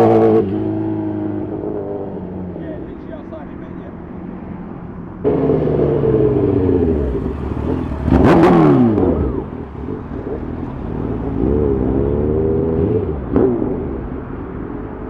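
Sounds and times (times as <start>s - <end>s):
motorcycle engines revving: 0.0s - 15.0s
motorcycle passing by: 0.0s - 15.0s
exhaust cracks: 5.2s - 12.0s.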